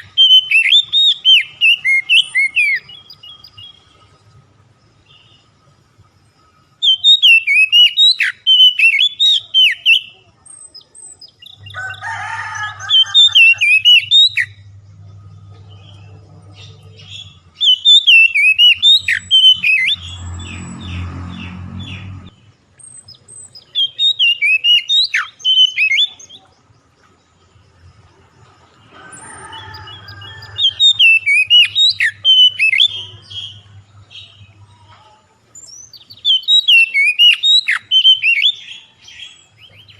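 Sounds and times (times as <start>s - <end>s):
songbird chirps and whistles: 0.0s - 5.6s, 6.4s - 14.7s, 15.5s - 21.0s, 22.8s - 27.0s, 28.9s - 34.5s, 35.5s - 39.9s
faint low hum: 14.5s - 17.6s.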